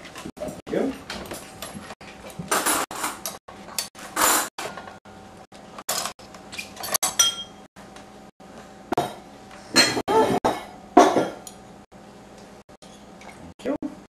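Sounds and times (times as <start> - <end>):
silverware and dishes clinking: 5.9 - 7.7, 9.7 - 11.6.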